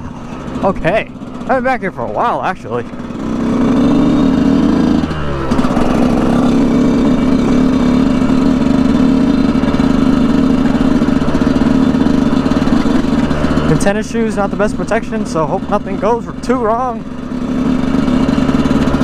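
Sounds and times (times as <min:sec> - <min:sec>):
two-stroke dirt bike engine running: 0:00.0 - 0:19.0.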